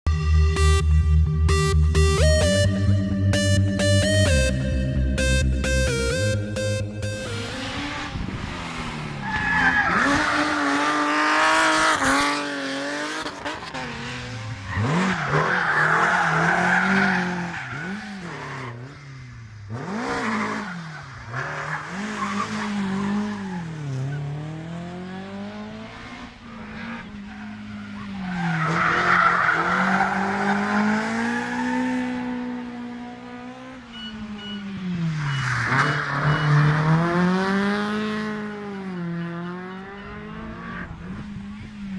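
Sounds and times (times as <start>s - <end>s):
rally car engines revving: 5.2s - 41.9s
tyres squealing: 14.7s - 19.0s.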